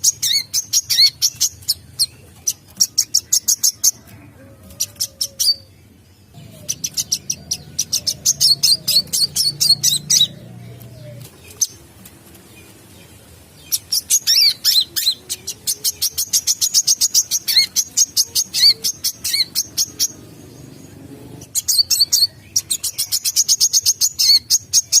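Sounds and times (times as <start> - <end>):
sunbird chirping and whistling: 0.0 - 4.0, 4.8 - 11.8, 13.6 - 25.0.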